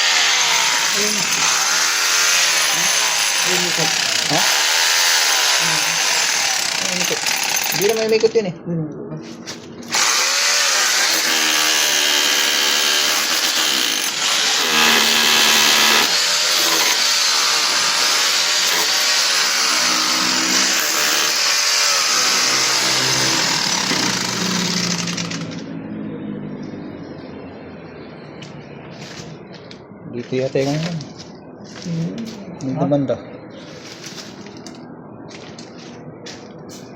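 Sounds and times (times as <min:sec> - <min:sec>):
electric power tool motor: 0:00.0 - 0:08.0, 0:09.9 - 0:25.7.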